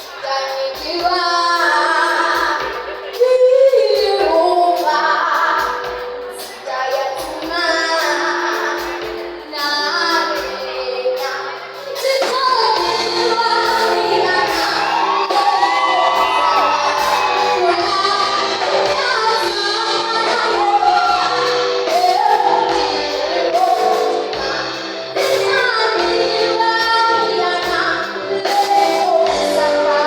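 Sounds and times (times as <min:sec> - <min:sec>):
children and woman singing: 0:06.4 - 0:30.0.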